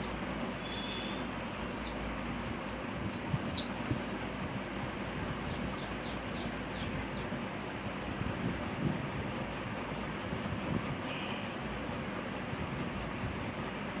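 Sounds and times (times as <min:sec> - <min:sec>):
birds squabbling calls: 0:03.4 - 0:03.8.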